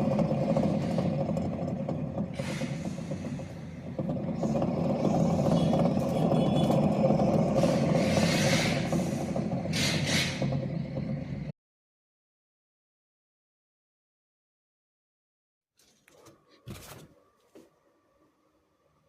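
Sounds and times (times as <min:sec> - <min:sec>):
road noise: 0:00.0 - 0:11.5
wheel bearing drone: 0:00.0 - 0:11.5.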